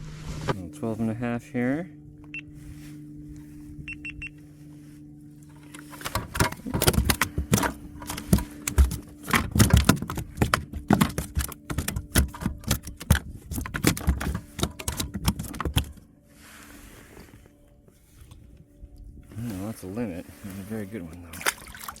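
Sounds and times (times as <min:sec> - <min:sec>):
fishing gear clicks and knocks: 0:05.4 - 0:16.0, 0:20.9 - 0:22.0.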